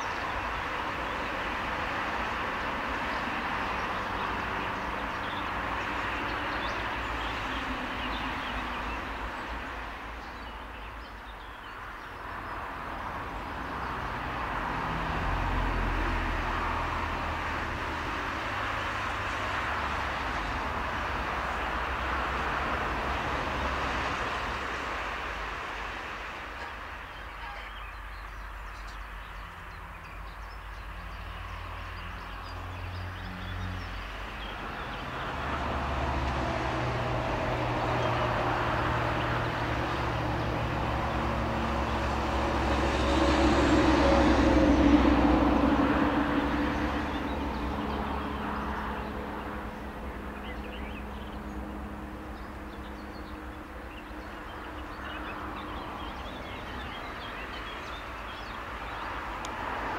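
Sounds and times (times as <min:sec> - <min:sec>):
train passing: 0:33.2 - 0:56.9.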